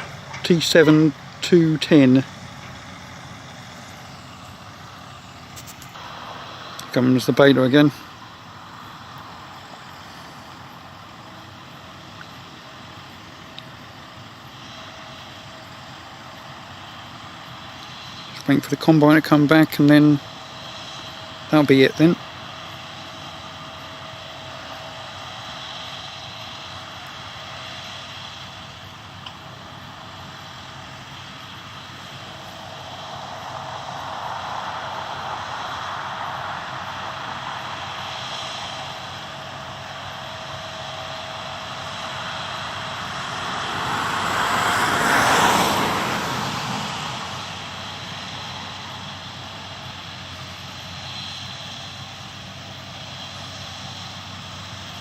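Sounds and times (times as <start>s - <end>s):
vehicle engine passing: 0.0s - 13.1s, 29.8s - 51.5s.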